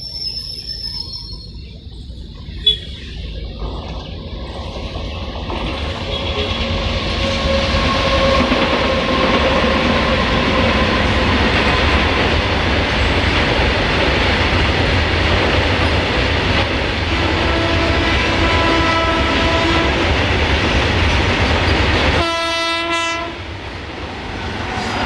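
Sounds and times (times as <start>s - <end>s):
train wheels rumbling on rail: 0.0s - 25.0s
train horn: 6.0s - 9.4s, 17.1s - 20.1s, 22.2s - 23.5s.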